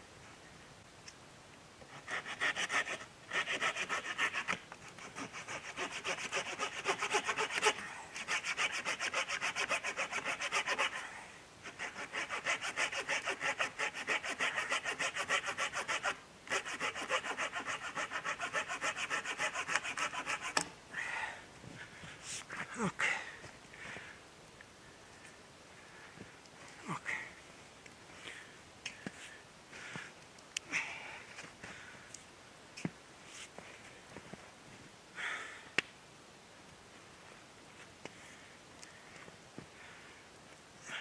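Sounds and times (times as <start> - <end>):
hand saw cutting wood: 1.9 - 11.0, 11.6 - 20.7.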